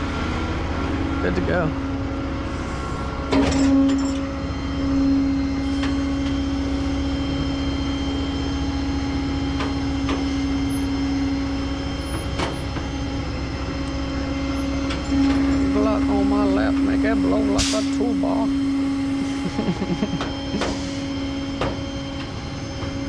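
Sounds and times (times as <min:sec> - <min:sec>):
truck engine and road rumble: 0:00.0 - 0:23.0.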